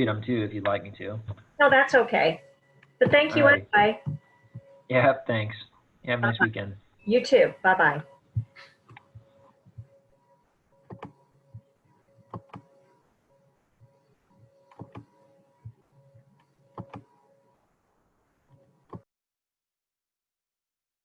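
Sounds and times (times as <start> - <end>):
faint steady hum: 0.0 - 19.0
faint clicks and knocks: 10.7 - 13.0, 13.8 - 17.2.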